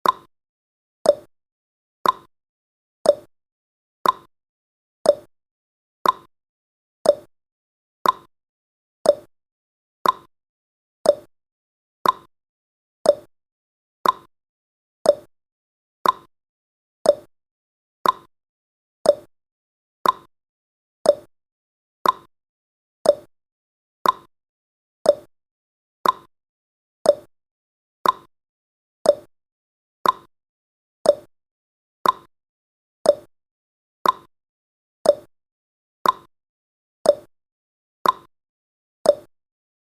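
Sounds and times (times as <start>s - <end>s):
timer ticking: 0.0s - 0.3s, 1.0s - 1.3s, 2.0s - 2.3s, 3.0s - 3.3s, 4.0s - 4.3s, 5.1s - 5.3s, 6.0s - 6.3s, 7.0s - 7.3s, 8.0s - 8.3s, 9.0s - 9.3s, 10.0s - 10.3s, 11.0s - 11.3s, 12.0s - 12.3s, 13.0s - 13.3s, 14.0s - 14.3s, 15.0s - 15.3s, 16.0s - 16.3s, 17.0s - 17.3s, 18.0s - 18.3s, 19.0s - 19.3s, 20.0s - 20.3s, 21.0s - 21.3s, 22.0s - 22.3s, 23.0s - 23.3s, 24.0s - 24.3s, 25.0s - 25.3s, 26.0s - 26.3s, 27.0s - 27.3s, 28.0s - 28.3s, 29.0s - 29.3s, 30.0s - 30.3s, 31.0s - 31.3s, 32.0s - 32.3s, 33.0s - 33.3s, 34.0s - 34.3s, 35.0s - 35.3s, 36.0s - 36.3s, 37.0s - 37.3s, 38.0s - 38.3s, 39.1s - 39.3s.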